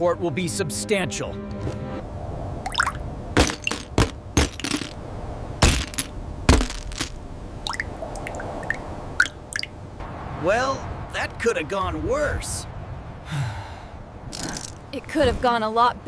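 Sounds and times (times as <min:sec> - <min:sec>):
debris cracking and clinking: 0:03.4 - 0:05.0, 0:05.6 - 0:07.2.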